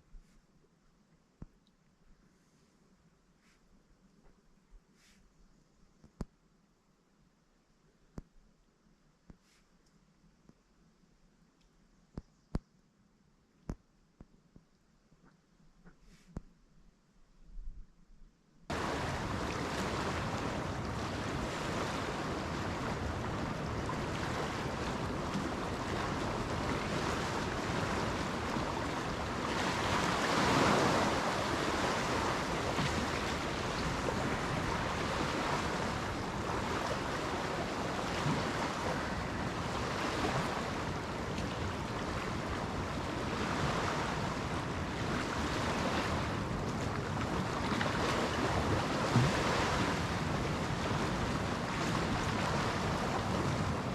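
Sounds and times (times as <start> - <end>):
waves washing onto shore: 18.7 - 53.9
wind buffeting microphone: 18.7 - 53.9.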